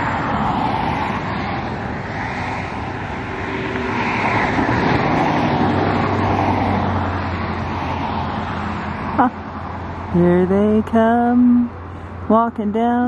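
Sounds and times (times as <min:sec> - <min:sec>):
passing vehicles: 0:00.0 - 0:13.0.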